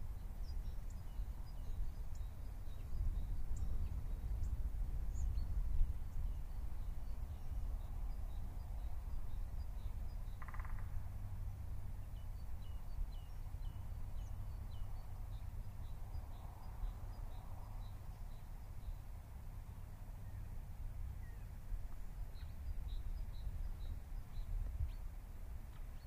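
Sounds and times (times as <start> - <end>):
small birds chirping: 0.0 - 11.0, 11.9 - 19.2, 21.2 - 26.0
low bird call: 10.3 - 11.0.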